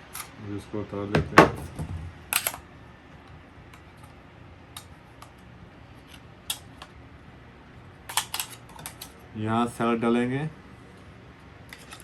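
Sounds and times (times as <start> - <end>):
low room noise: 0.0 - 12.0
plastic parts clicking: 2.3 - 2.6, 8.1 - 9.2.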